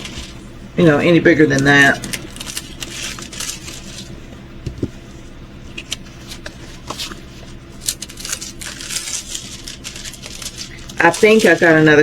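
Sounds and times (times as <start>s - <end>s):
plastic packaging crinkling: 1.4s - 4.2s, 5.7s - 12.0s.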